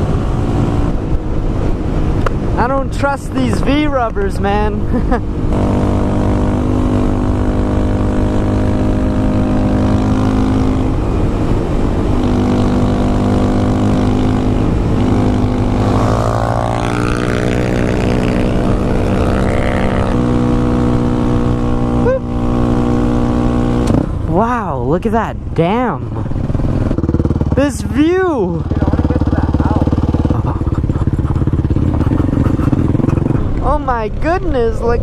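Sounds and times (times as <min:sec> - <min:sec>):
motorcycle engine running: 0:00.0 - 0:24.5, 0:25.4 - 0:35.0.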